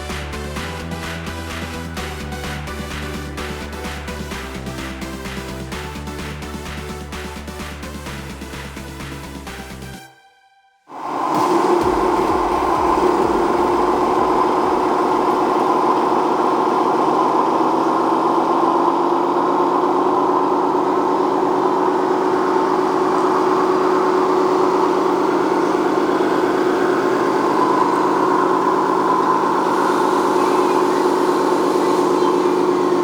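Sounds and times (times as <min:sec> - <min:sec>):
electric motor whining: 0:10.9 - 0:33.0.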